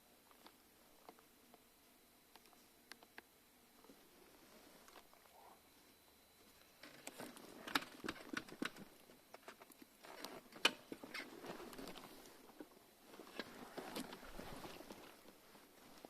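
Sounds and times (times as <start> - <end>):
light crackling and rustling: 2.3 - 16.0.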